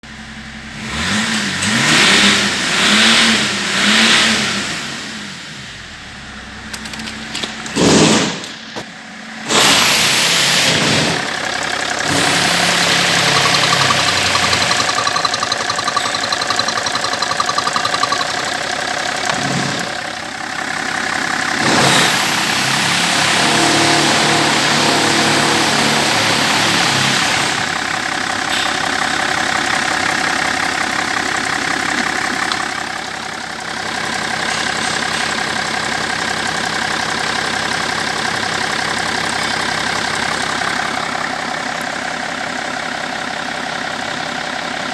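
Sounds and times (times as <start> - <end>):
diesel engine revving and idling: 0.0 - 44.9.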